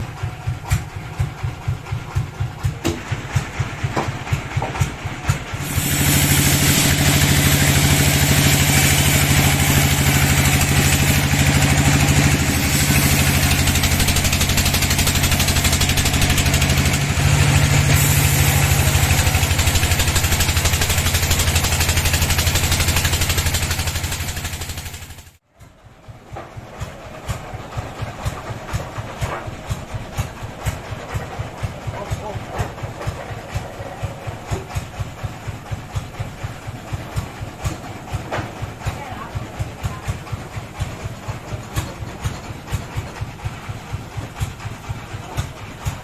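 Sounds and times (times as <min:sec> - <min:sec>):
bandsaw engine chugging: 0:00.0 - 0:46.0.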